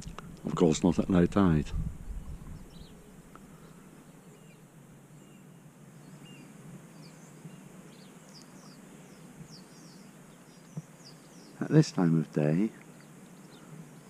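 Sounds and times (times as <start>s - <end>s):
birds chirping faintly: 0.0s - 14.0s
low background hiss: 0.0s - 14.0s.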